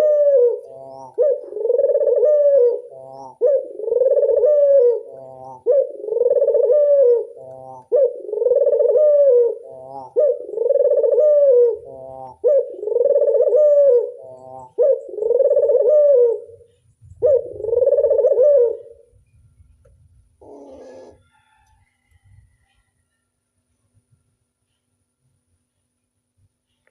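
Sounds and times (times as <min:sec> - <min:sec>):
dove rolling coo: 0:00.0 - 0:19.1, 0:20.4 - 0:21.4.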